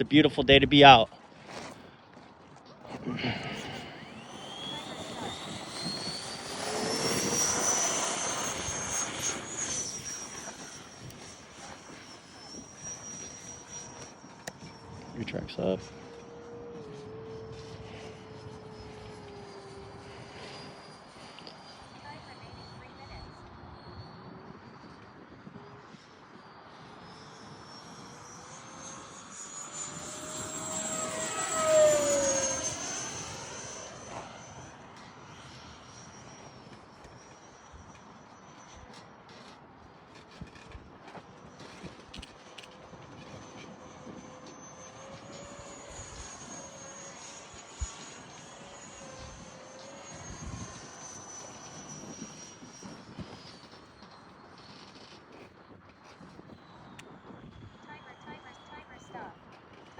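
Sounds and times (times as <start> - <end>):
model jet fan whining: 0.0 - 59.9
wind rumbling on microphone: 49.2 - 58.4.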